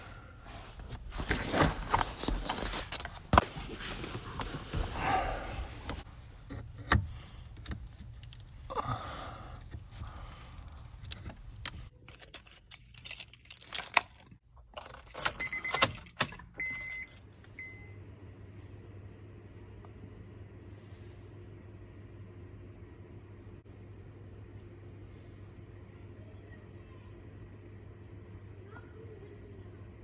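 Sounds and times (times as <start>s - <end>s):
steady low hum: 0.0s - 13.8s, 17.0s - 30.0s
keys jangling: 12.0s - 16.5s.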